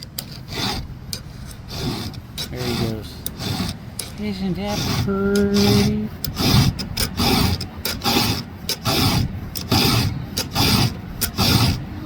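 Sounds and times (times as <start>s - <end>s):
hand file rasping on chain: 0.0s - 12.0s.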